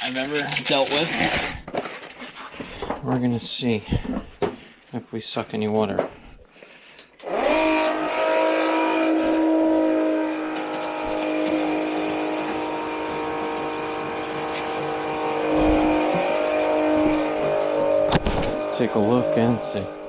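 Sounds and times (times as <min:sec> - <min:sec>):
shop vacuum motor whine: 0:07.2 - 0:20.0.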